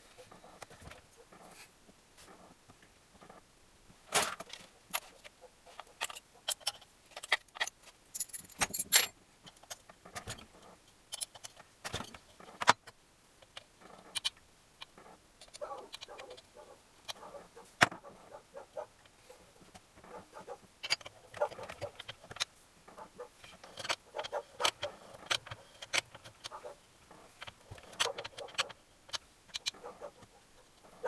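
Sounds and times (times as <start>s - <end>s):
metallic clicks and clinks: 5.8s - 10.4s, 11.1s - 14.4s, 20.8s - 22.5s.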